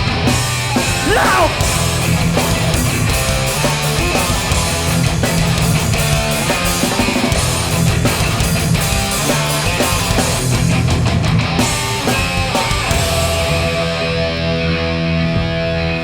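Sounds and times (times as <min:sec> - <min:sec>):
bass guitar: 0:00.0 - 0:16.0
distorted electric guitars: 0:00.0 - 0:16.0
drums: 0:00.0 - 0:16.0.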